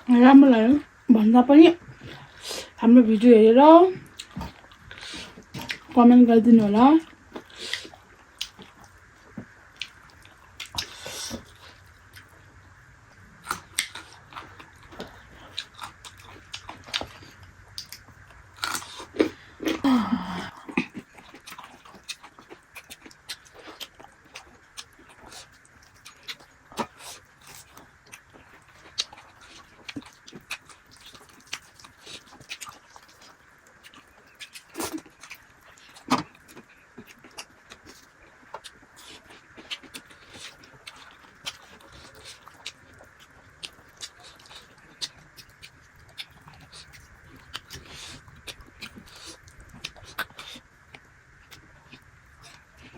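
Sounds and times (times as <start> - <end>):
person chewing food: 4.0 - 6.0, 7.0 - 52.9.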